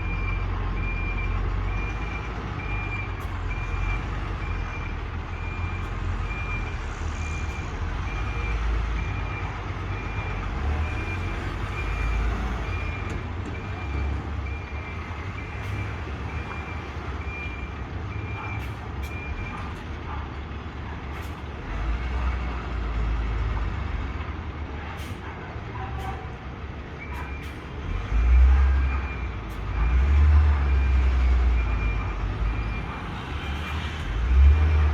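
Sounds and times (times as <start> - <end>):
truck engine rumble: 0.0 - 34.9
reversing alarm beeping: 28.3 - 34.9.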